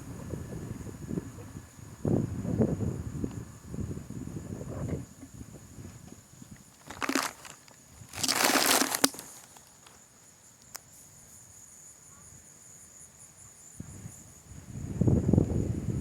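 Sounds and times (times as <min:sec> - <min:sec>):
crinkling rustle: 0:05.9 - 0:10.0.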